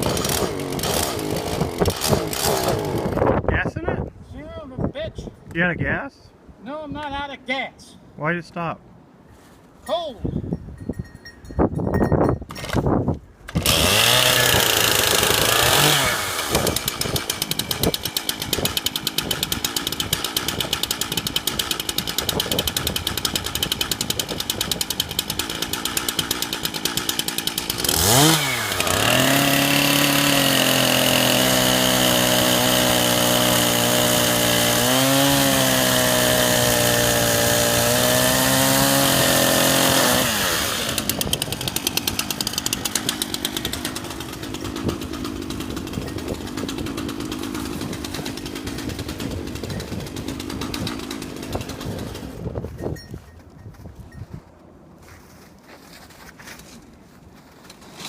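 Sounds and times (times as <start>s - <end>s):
chainsaw engine revving: 0.0s - 3.3s, 13.5s - 52.4s.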